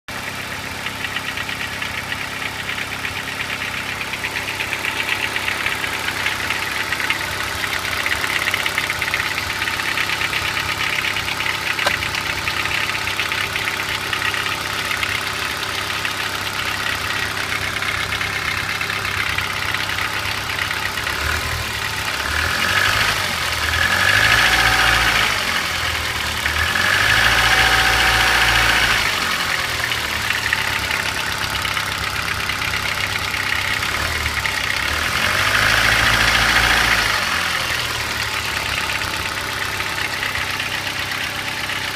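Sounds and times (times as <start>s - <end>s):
car engine idling: 0.1s - 41.9s
engine revving: 16.8s - 41.9s.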